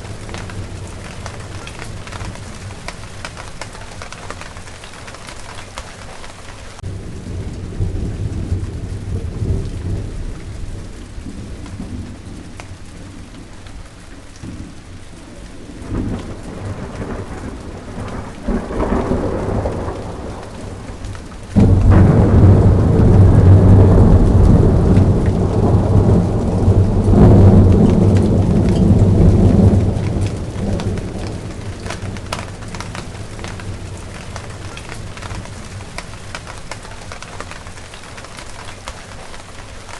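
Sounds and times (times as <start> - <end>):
rain falling: 0.0 - 39.9
thunder rumbling: 0.0 - 39.9
loud thunder peal: 15.6 - 36.5.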